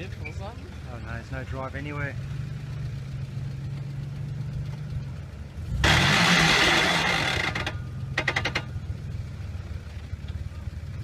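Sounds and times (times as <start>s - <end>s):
engine idling and revving: 0.0s - 11.0s
rapid mechanical rattling: 5.8s - 8.8s.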